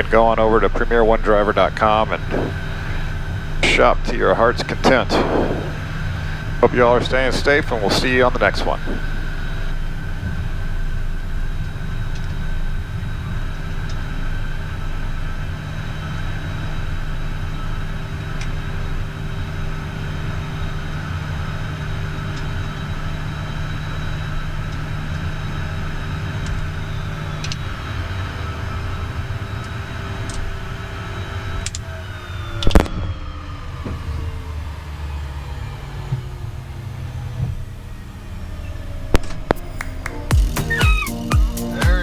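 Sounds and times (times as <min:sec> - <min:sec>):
faint steady tones: 0:00.0 - 0:42.0
jet engines droning: 0:00.0 - 0:42.0
tones falling in pitch: 0:39.5 - 0:42.0.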